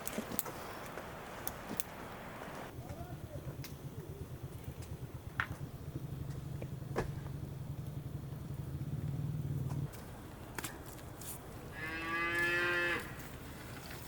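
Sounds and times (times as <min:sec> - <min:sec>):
cattle mooing: 0:11.7 - 0:13.2.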